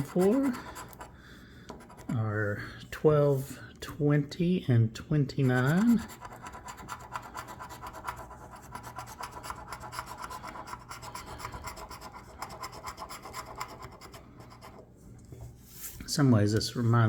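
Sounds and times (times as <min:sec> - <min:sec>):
lottery ticket being scratched: 0:00.0 - 0:01.1, 0:05.2 - 0:14.8.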